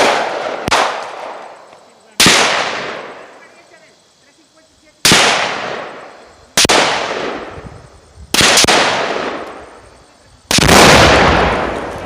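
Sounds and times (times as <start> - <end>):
rifle shots with rolling echo: 0.0 - 1.6, 2.2 - 3.4, 5.0 - 7.7, 8.3 - 9.9, 10.5 - 12.0.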